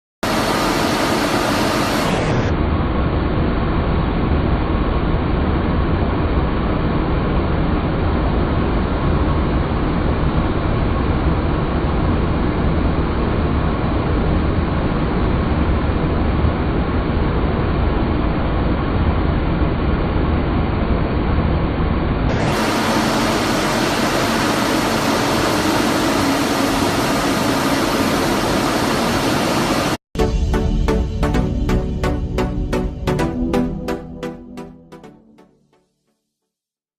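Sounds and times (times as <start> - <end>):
jet engine rush: 0.2 - 2.8, 22.3 - 30.0
rhythmic music: 30.2 - 35.8.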